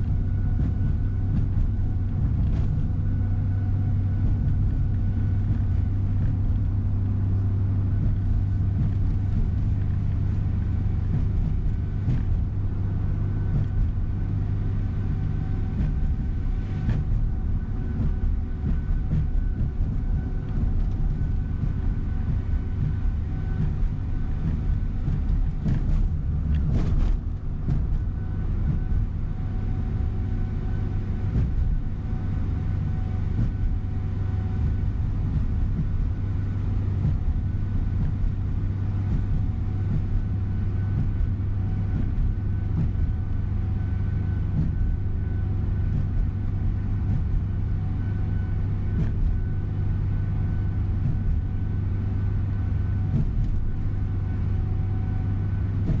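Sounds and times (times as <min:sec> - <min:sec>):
bus engine and road rumble: 0:00.0 - 0:56.0
faint steady whine: 0:00.0 - 0:56.0
bus bump: 0:13.4 - 0:56.0.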